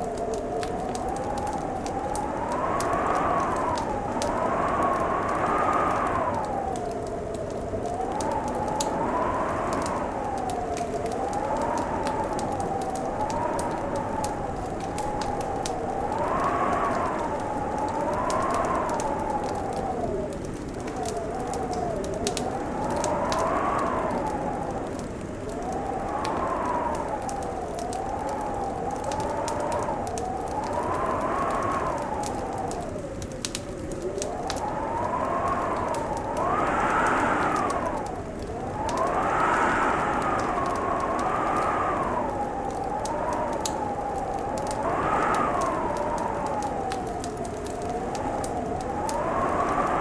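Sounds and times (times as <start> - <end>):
fireplace crackling: 0.0 - 50.0
howling wind: 0.0 - 50.0.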